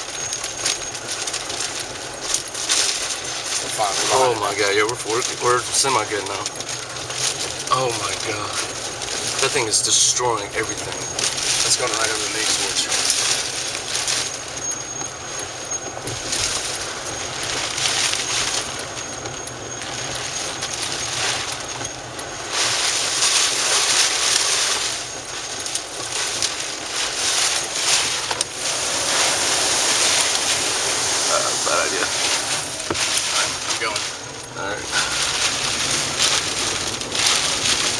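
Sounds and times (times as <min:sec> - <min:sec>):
gusty wind buffeting microphone: 0:28.5 - 0:37.9.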